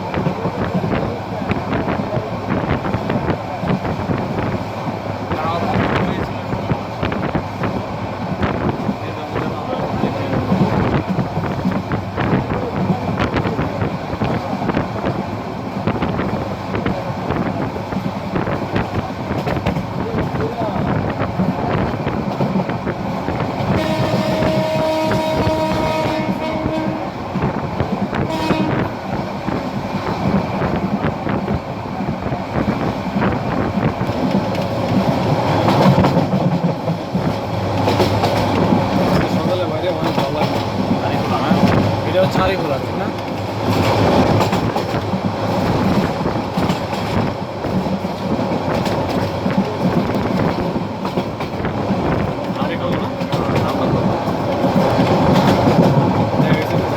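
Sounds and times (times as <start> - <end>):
train rumbling on track: 0.0 - 56.9
train wheel clicks: 0.1 - 56.9
wheels clicking over rail joints: 32.5 - 56.9.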